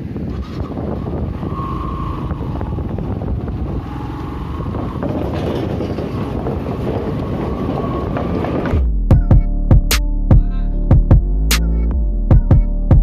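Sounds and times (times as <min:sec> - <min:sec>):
wind on microphone: 0:00.0 - 0:09.3.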